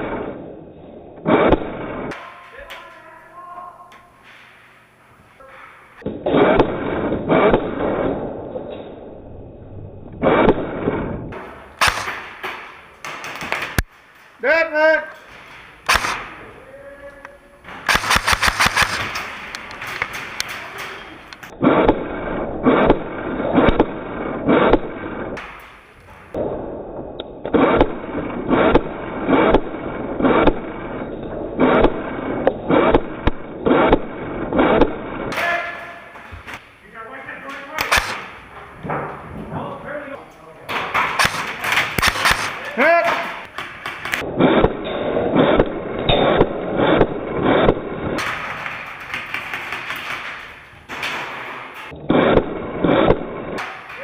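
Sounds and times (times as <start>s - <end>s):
airsoft rifle single shots: 11.8s - 12.4s, 15.8s - 16.4s, 17.8s - 19.2s, 37.8s - 38.4s, 41.0s - 42.6s
footsteps walking: 35.9s - 36.7s.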